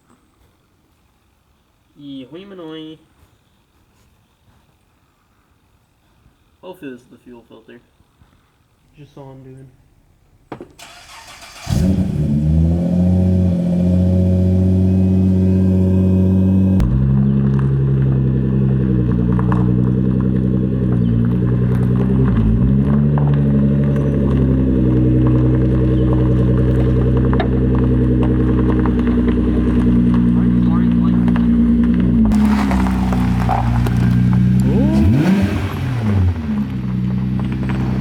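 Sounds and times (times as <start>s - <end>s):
car engine cranking and idling: 9.8s - 38.0s.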